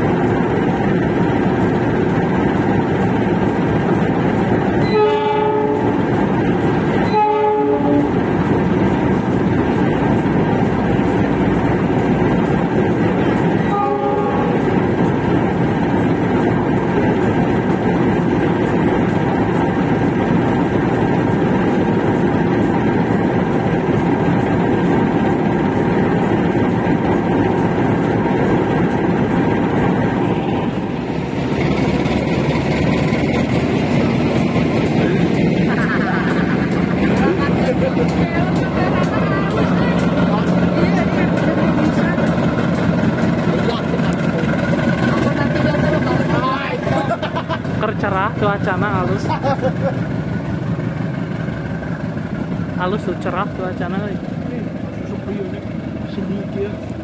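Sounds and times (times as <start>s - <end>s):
train wheels roaring on rail: 0.0s - 57.0s
locomotive horn blasts: 4.8s - 6.0s, 7.0s - 8.2s, 13.7s - 14.7s.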